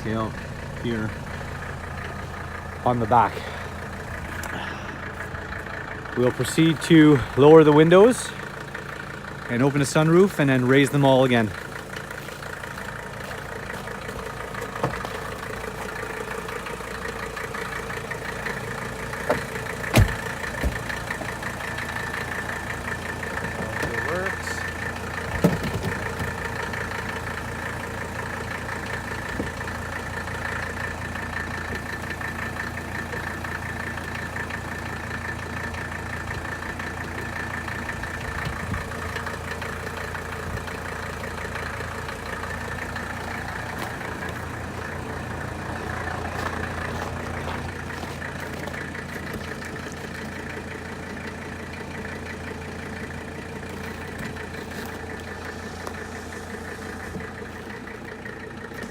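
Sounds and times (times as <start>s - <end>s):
diesel engine idling: 0.0s - 58.9s.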